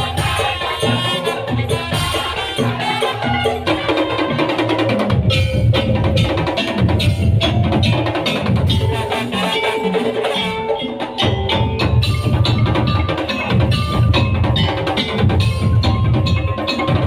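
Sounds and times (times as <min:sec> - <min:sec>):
wooden slit drums: 0:00.0 - 0:17.0
deep drums: 0:03.6 - 0:09.2, 0:11.2 - 0:17.0.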